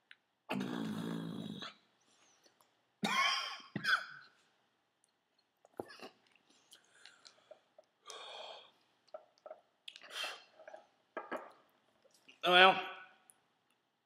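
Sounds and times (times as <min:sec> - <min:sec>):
wet mouth clicks: 0:05.0 - 0:08.2, 0:09.0 - 0:10.8
man chewing: 0:05.0 - 0:10.9.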